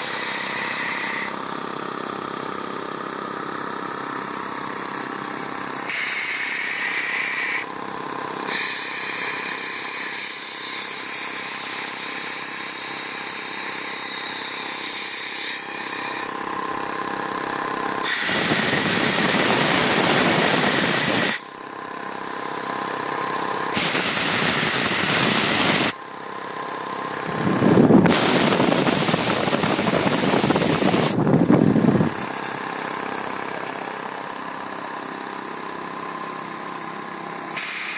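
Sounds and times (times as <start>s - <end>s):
loud hissing air: 0.0s - 1.5s, 5.8s - 7.7s, 8.4s - 16.3s, 18.0s - 21.5s, 23.7s - 26.0s, 27.2s - 34.1s, 37.5s - 37.9s
air compressor humming: 0.0s - 37.9s.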